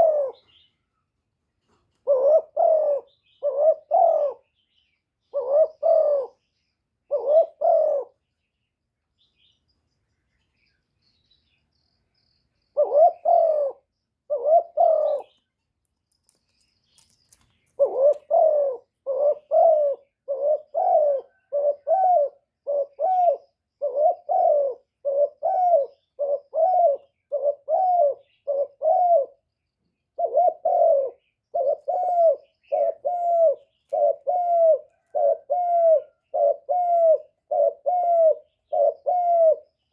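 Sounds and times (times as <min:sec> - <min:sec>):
dove cooing: 0:00.0 - 0:00.7, 0:01.9 - 0:04.6, 0:05.2 - 0:08.2, 0:12.7 - 0:15.4, 0:17.7 - 0:29.5, 0:30.1 - 0:39.8.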